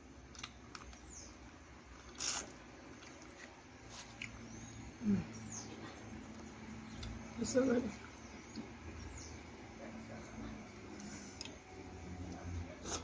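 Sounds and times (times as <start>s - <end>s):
person chewing: 0.2s - 1.0s, 1.9s - 4.5s.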